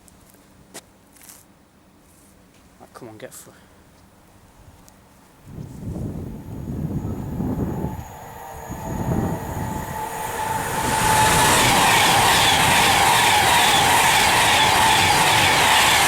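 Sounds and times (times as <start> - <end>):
electric train passing at speed: 5.2 - 16.0
steady whine: 5.6 - 16.0.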